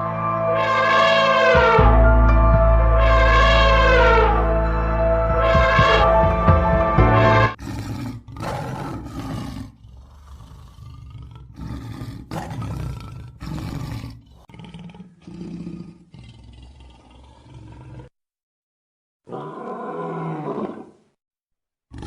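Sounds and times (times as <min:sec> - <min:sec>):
big cat roaring: 0:07.6 - 0:18.1, 0:19.3 - 0:20.9.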